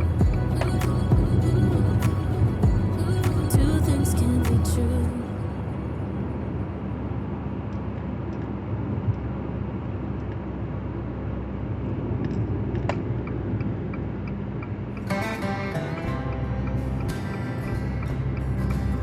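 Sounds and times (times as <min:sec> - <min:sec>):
guitar music: 0:00.0 - 0:06.3, 0:15.0 - 0:19.0
car engine and road rumble: 0:00.0 - 0:19.0.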